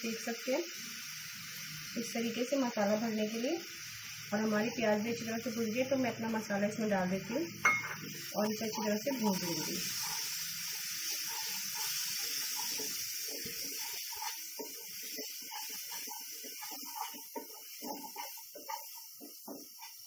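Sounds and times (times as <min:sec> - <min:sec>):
food sizzling in a pan: 0:00.0 - 0:20.0
wooden spatula scraping a pan: 0:08.7 - 0:20.0.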